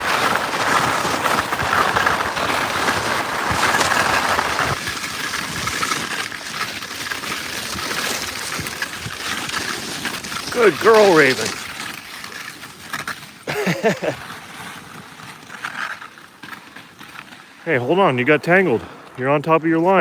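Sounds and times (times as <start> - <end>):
skis sliding over snow: 0.0 - 20.0.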